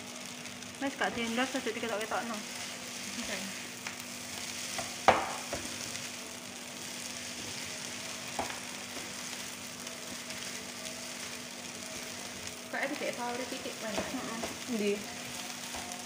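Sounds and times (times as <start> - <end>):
rice sizzling in a frying pan: 0.0 - 16.0
spatula knocking against pan: 4.8 - 5.7.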